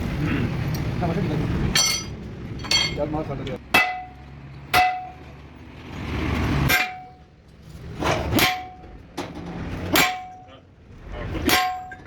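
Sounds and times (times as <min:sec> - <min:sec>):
hammer clanging on steel: 0:01.7 - 0:05.3, 0:06.7 - 0:07.2, 0:08.0 - 0:10.6, 0:11.4 - 0:12.0.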